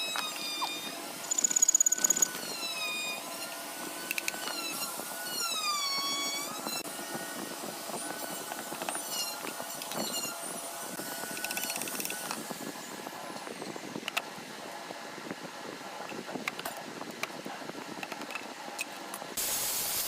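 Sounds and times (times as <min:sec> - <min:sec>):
electric drill motor whining: 0:00.0 - 0:12.9.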